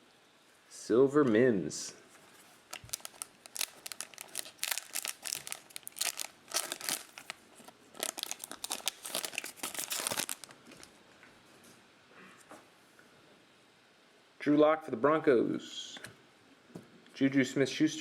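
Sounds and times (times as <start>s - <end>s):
wrapper crinkling and tearing: 2.7s - 10.9s.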